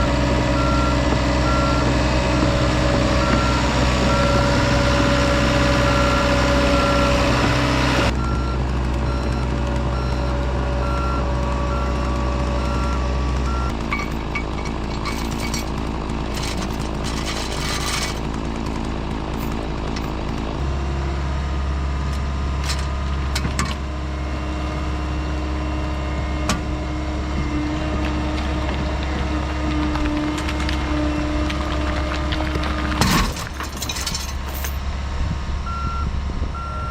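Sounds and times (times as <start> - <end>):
heavy equipment diesel engine: 0.0 - 36.9
backup alarm beeping: 35.7 - 36.9.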